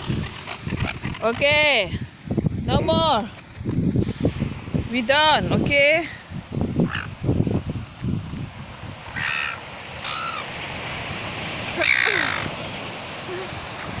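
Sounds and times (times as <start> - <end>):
bird harsh calls: 9.1 - 10.5, 11.8 - 12.5.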